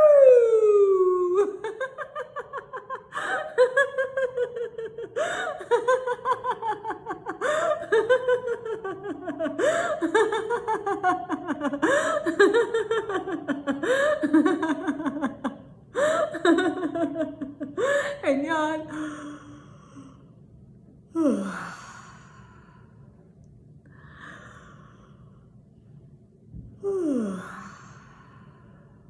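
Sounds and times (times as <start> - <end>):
woman laughing heartily: 1.2 - 18.2.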